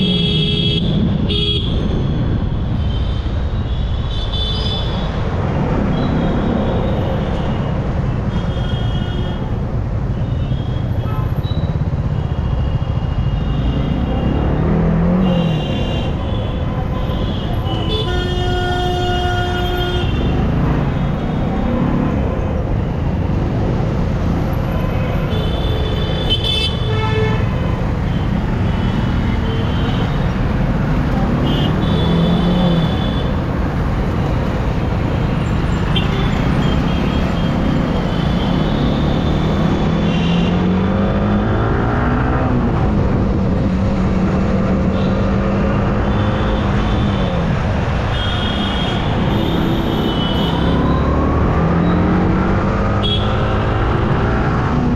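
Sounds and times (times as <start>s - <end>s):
vehicle horns honking: 15.2s - 21.2s, 31.2s - 33.5s, 35.4s - 40.7s, 48.1s - 51.0s, 53.0s - 53.7s.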